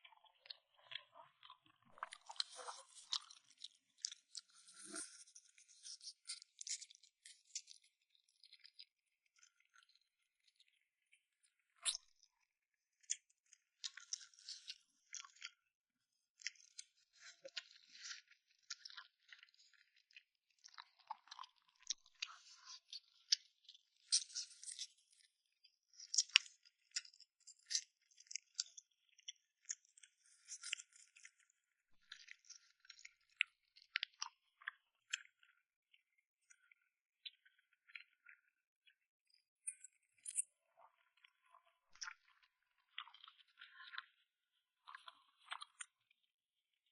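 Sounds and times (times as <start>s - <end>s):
person chewing and mouth sounds: 1.4s - 5.3s.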